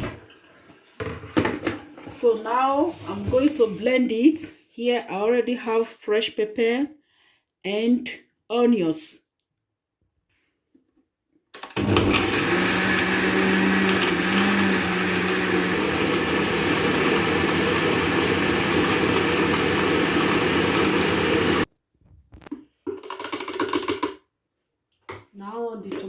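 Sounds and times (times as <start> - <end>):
electric blender running: 11.6 - 21.7.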